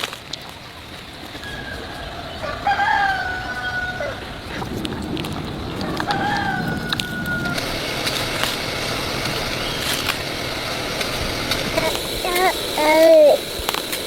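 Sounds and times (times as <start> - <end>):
clicks and rustling: 0.0 - 1.5, 4.5 - 14.0
rooster crowing: 1.4 - 4.6, 5.5 - 9.1.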